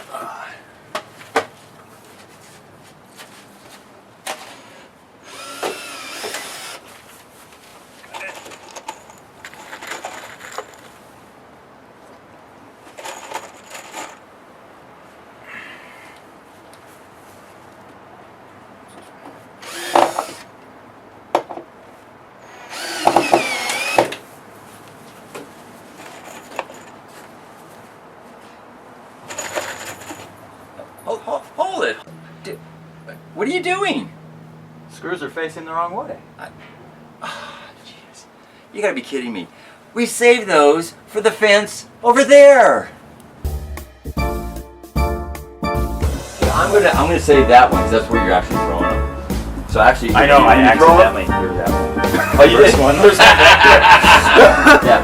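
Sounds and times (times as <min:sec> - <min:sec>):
power drill whining: 0:04.5 - 0:06.9, 0:19.6 - 0:20.5, 0:22.4 - 0:24.2.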